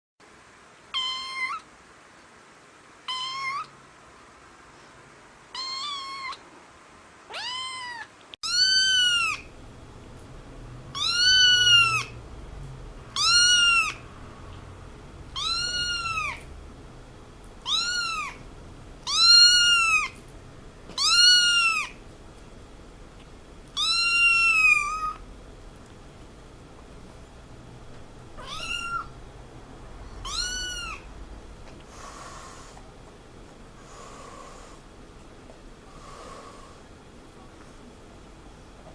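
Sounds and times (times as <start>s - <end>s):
cat meowing: 0.9s - 1.7s, 3.1s - 3.7s, 5.5s - 6.4s, 7.3s - 9.5s, 10.9s - 12.2s, 13.1s - 14.0s, 15.4s - 16.5s, 17.6s - 18.4s, 19.0s - 20.2s, 21.0s - 22.0s, 23.8s - 25.2s, 28.4s - 29.2s, 30.2s - 31.1s.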